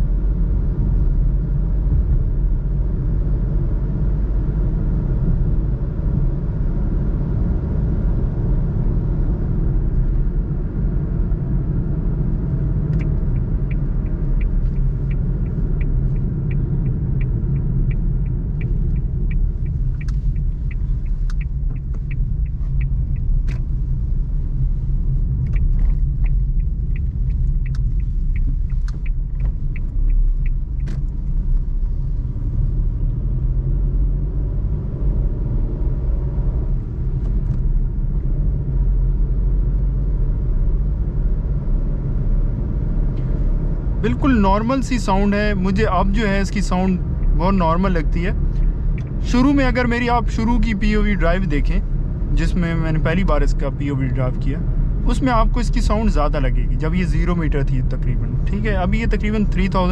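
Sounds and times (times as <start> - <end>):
car engine at low revs: 0.0 - 59.9
road and tyre noise: 0.0 - 59.9
light regular ticking: 12.4 - 32.7, 44.0 - 59.9.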